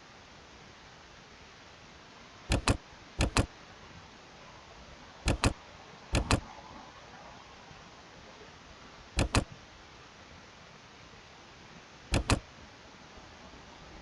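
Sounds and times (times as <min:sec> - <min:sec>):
faint steady hiss: 0:00.0 - 0:14.0
computer mouse clicks: 0:02.5 - 0:03.5, 0:05.3 - 0:06.5, 0:09.2 - 0:09.6, 0:12.1 - 0:12.4.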